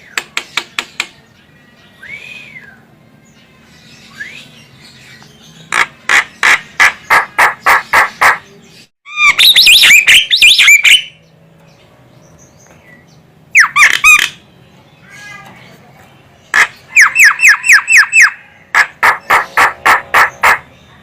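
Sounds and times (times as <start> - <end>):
bird sharp calls: 5.1 - 11.2, 13.5 - 14.4, 16.4 - 21.0
bird squeaky chattering: 9.1 - 11.2, 13.6 - 14.4, 16.5 - 20.8.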